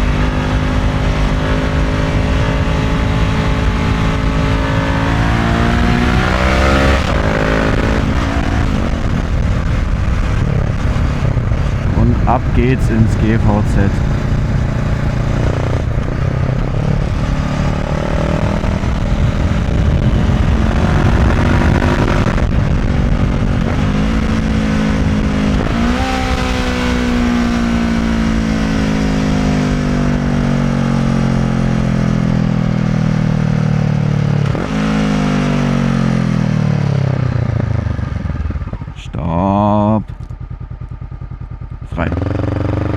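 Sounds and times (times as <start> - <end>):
wind noise on microphone: 0.0 - 32.8
motorcycle engine accelerating: 0.0 - 42.9.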